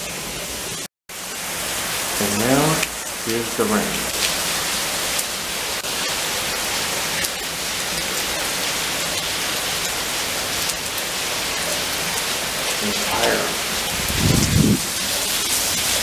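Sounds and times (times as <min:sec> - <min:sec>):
heavy rain on pavement: 0:00.0 - 0:16.0
raindrop ticks: 0:02.2 - 0:05.9, 0:07.1 - 0:14.6.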